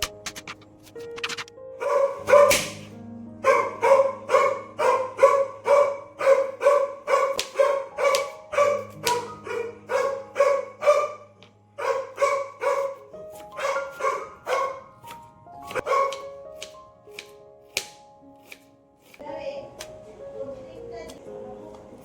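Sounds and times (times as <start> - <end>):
dog barking: 1.8 - 14.9, 15.7 - 16.4.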